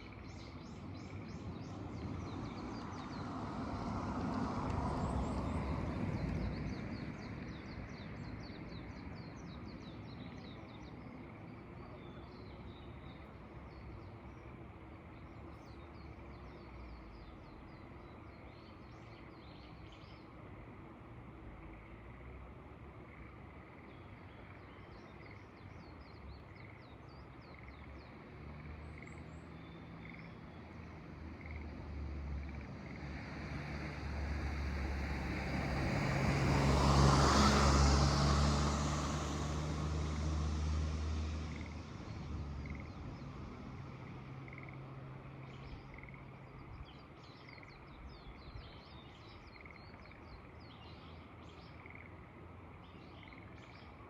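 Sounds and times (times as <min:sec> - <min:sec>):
vehicle passing by: 0:00.8 - 0:10.3, 0:27.6 - 0:46.8
frogs calling: 0:44.4 - 0:44.9, 0:45.8 - 0:46.7, 0:51.7 - 0:52.2.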